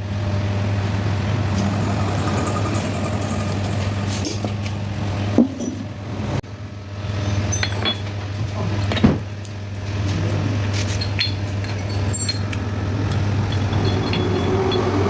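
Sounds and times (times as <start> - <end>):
steady low hum: 0.0 - 15.0
metal tools clinking: 7.2 - 8.2, 10.8 - 15.0.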